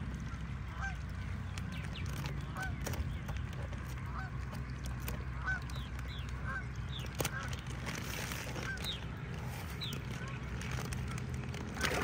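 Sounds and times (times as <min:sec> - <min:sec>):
steady low hum: 0:00.0 - 0:12.0
large bird honking: 0:05.3 - 0:05.8, 0:06.4 - 0:07.5.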